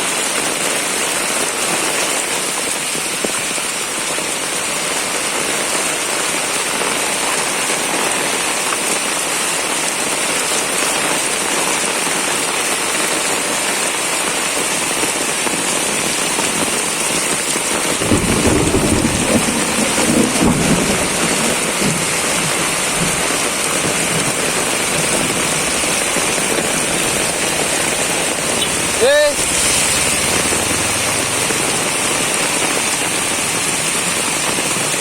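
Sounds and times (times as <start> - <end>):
heavy rain pouring: 0.0 - 35.0
thunder rumbling: 17.9 - 34.6.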